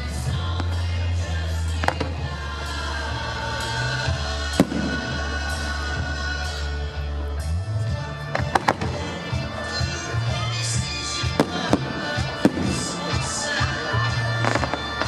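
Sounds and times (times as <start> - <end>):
music with heavy bass: 0.0 - 15.0
faint fireworks pops: 1.8 - 2.2, 8.3 - 9.0, 14.4 - 15.0
fireworks bangs: 1.8 - 2.4, 4.5 - 5.6, 8.3 - 9.6, 11.2 - 15.0.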